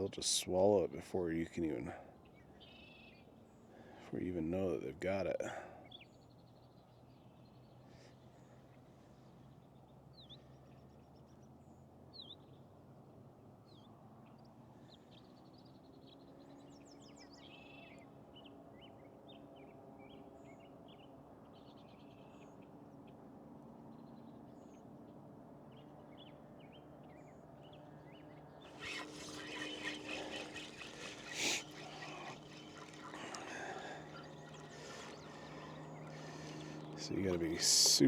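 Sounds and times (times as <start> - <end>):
faint steady hum: 28.7 - 38.0
small birds chirping: 28.7 - 38.0.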